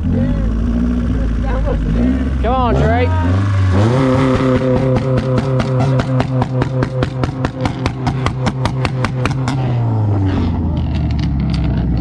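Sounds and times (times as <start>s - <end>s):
car engine on rev limiter: 0.0s - 12.0s
exhaust cracks and pops: 3.3s - 12.0s.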